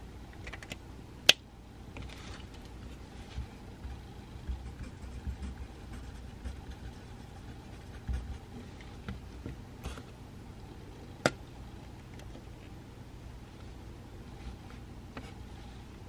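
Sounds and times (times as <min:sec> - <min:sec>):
low room hum: 0:00.0 - 0:16.0
pencil writing on paper: 0:03.4 - 0:08.9.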